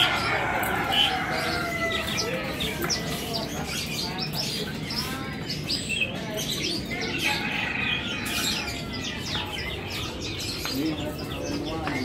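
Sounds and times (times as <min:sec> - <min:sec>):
caged birds chirping and trilling: 0:00.0 - 0:12.0.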